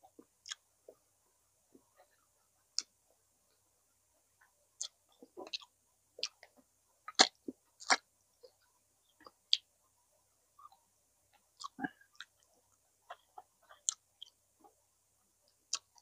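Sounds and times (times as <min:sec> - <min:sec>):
person chewing food: 0:00.1 - 0:01.0, 0:04.8 - 0:09.7, 0:10.6 - 0:14.8, 0:15.5 - 0:16.0.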